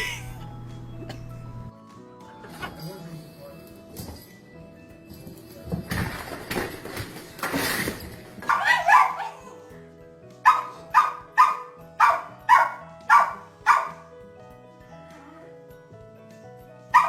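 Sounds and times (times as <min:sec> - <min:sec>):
background music: 0:00.0 - 0:17.0
dog barking: 0:08.4 - 0:09.6, 0:10.4 - 0:14.1.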